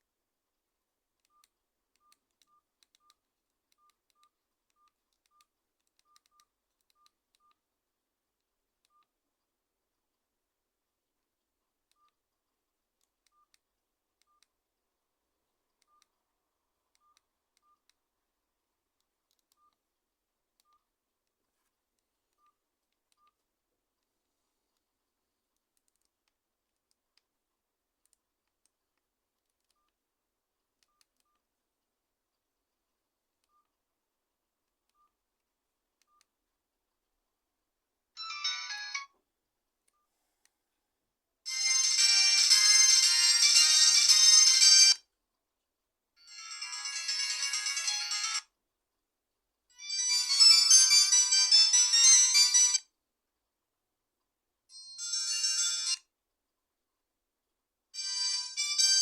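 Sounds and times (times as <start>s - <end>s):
ringtone melody: 38.2s - 39.1s, 41.5s - 45.0s, 46.2s - 48.4s, 49.8s - 52.8s, 54.8s - 56.0s, 58.0s - 59.0s.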